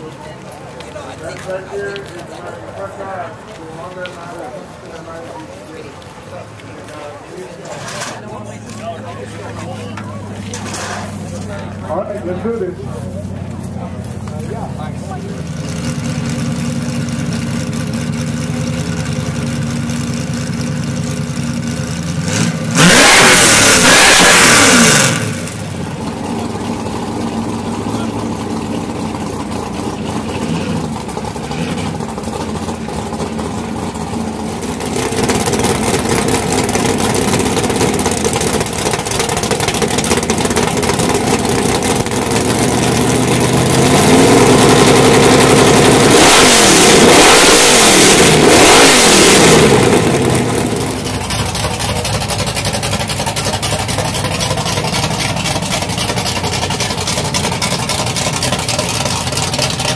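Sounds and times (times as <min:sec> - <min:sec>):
car engines idling: 0:00.0 - 0:59.9
engine revving: 0:15.2 - 0:59.9
loud engine blast: 0:22.0 - 0:59.9.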